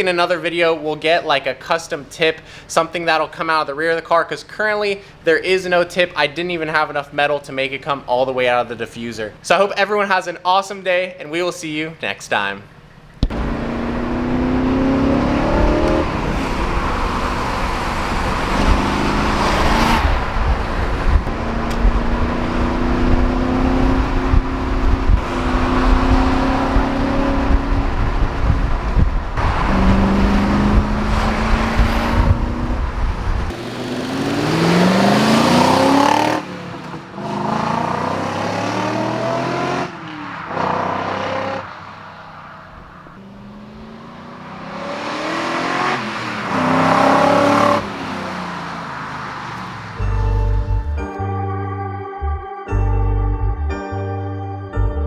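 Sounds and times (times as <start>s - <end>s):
car engine accelerating hard: 13.2s - 51.1s.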